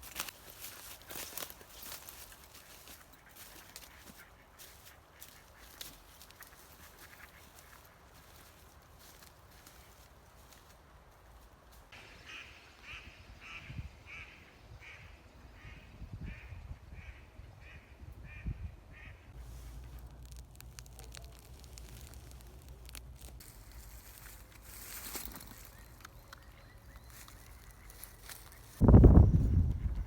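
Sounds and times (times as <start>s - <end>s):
bird calling: 24.0s - 28.8s.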